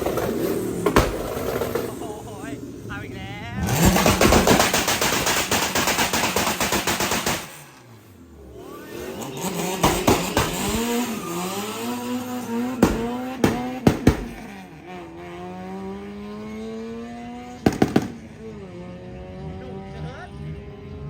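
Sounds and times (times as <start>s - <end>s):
exhaust pops and bangs: 0.0s - 2.2s, 3.6s - 7.8s, 9.6s - 11.2s, 12.0s - 14.6s, 17.6s - 18.4s
car engine revving: 0.0s - 21.0s.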